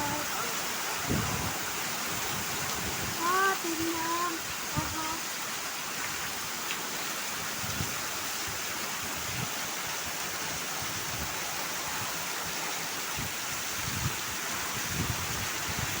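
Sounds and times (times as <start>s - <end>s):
wind gusts buffeting microphone: 0.0s - 5.2s, 13.1s - 16.0s
heavy rain pouring: 0.0s - 16.0s.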